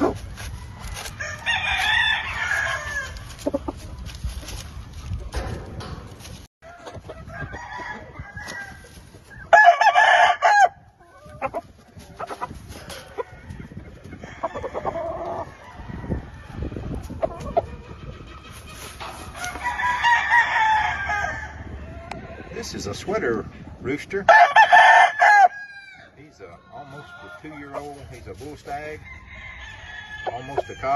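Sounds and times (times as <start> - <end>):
chickens clucking: 0.0 - 1.3, 2.4 - 9.5, 10.8 - 19.6, 26.4 - 29.5
roosters crowing: 0.0 - 3.8, 6.6 - 22.9, 24.2 - 30.9.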